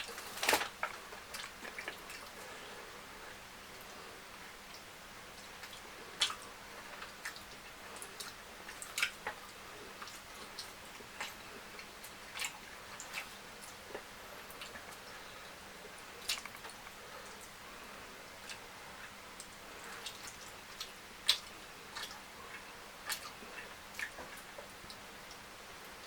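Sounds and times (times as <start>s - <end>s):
wet chewing and mouth clicks: 16.2s - 17.0s.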